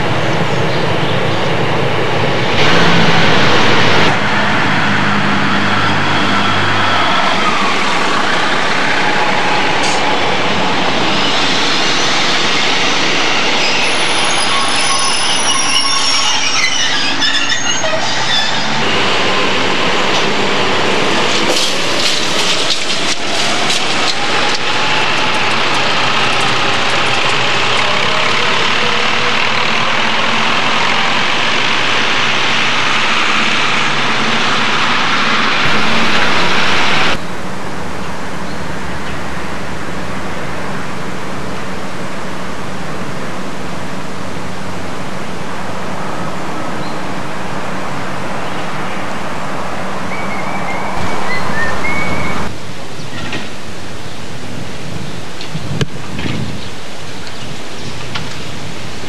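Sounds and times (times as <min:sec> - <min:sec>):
train engine and wheels on rails: 0:00.0 - 0:59.0
high wheel squeal: 0:02.6 - 0:37.2
clicks from rail joints: 0:21.2 - 0:28.6.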